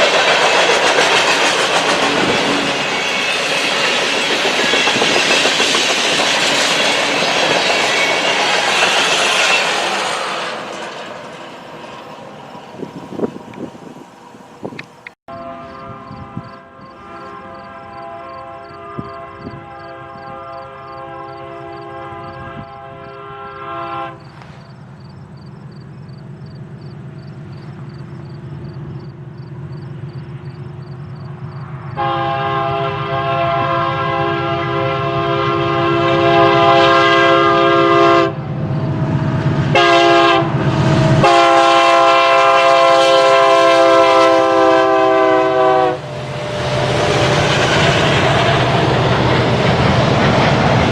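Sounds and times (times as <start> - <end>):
low rumble of train: 0.0 - 50.9
locomotive air horn blasts: 15.3 - 24.7, 32.0 - 38.4, 39.7 - 47.1.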